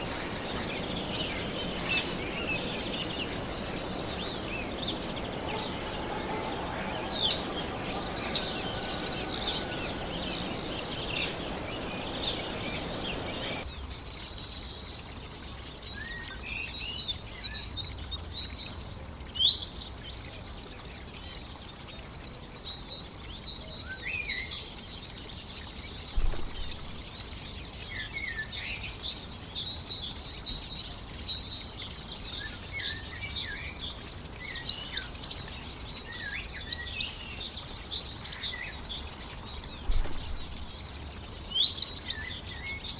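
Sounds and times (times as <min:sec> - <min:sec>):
small birds chirping: 0:00.0 - 0:13.6, 0:25.6 - 0:42.9
steady hiss: 0:00.0 - 0:13.6.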